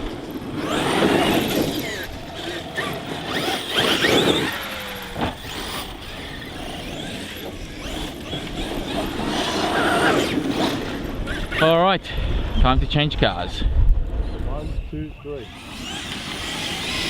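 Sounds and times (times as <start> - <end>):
electric motors whining: 0.0 - 12.6, 14.0 - 17.0.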